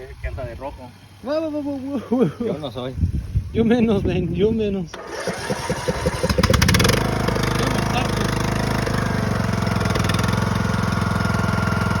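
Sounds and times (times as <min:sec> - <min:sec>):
tractor engine cranking and idling: 0:04.8 - 0:12.0.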